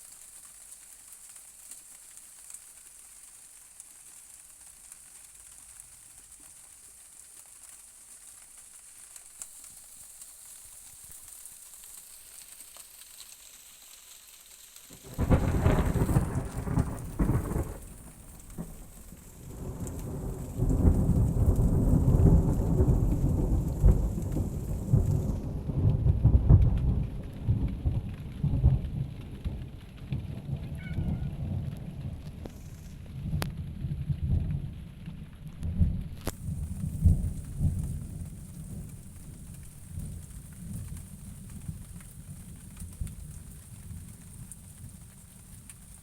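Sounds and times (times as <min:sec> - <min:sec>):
thunder crack and rumble: 0:14.9 - 0:45.2.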